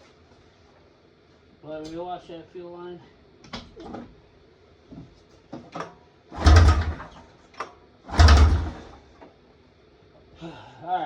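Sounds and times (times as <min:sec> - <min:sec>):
recoil starter cranking engine: 0:06.4 - 0:07.2, 0:08.1 - 0:09.1.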